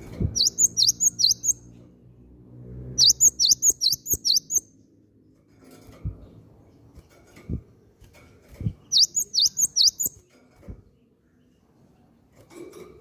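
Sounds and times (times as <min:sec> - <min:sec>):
bird singing high chirps: 0:00.3 - 0:01.7, 0:03.0 - 0:04.8, 0:08.9 - 0:10.2.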